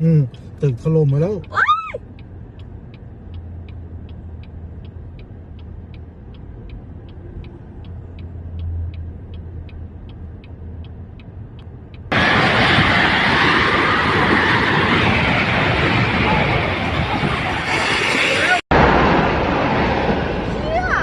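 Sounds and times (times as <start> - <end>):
light regular ticking: 0.0 - 12.2
low steady rumble: 0.0 - 18.1
loud rushing noise: 12.1 - 21.0.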